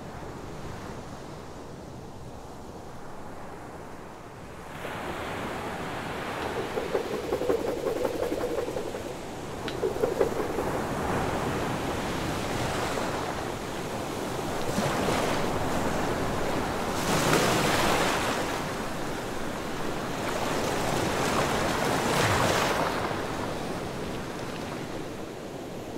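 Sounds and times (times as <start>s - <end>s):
ocean waves washing in: 6.0s - 12.2s.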